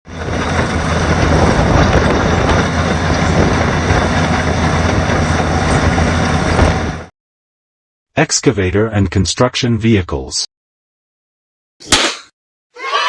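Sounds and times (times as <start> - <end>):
heavy machinery rumbling: 0.1 - 7.1.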